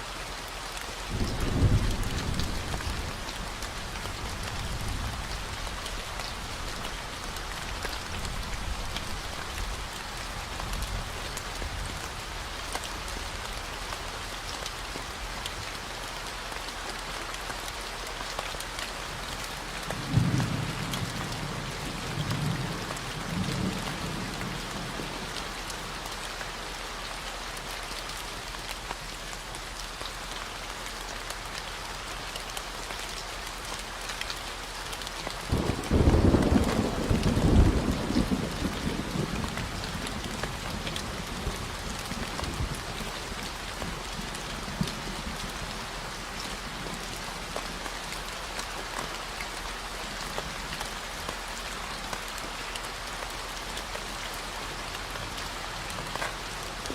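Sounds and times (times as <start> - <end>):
steady rain falling: 0.0 - 56.9
distant thunder rumbling: 35.5 - 40.0.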